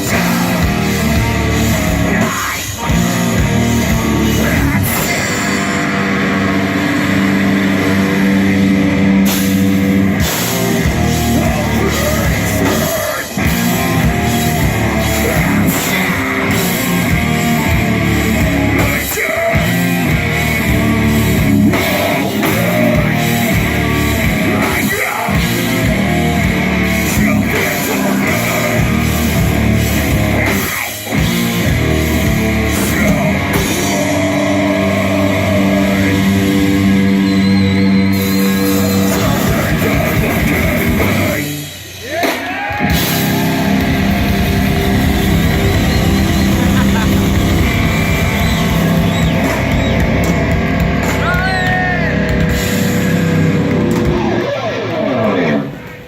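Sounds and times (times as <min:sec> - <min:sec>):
person singing: 0:00.0 - 0:06.8, 0:10.9 - 0:26.4, 0:27.0 - 0:31.0, 0:32.6 - 0:37.1, 0:38.8 - 0:50.4
distorted electric guitars: 0:00.0 - 0:56.0
pounding drum kit: 0:00.0 - 0:56.0.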